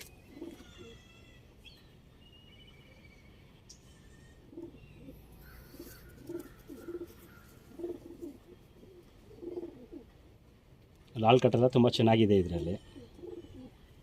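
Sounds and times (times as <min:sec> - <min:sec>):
pigeons cooing: 0:00.0 - 0:01.1, 0:03.9 - 0:10.4, 0:12.8 - 0:14.0.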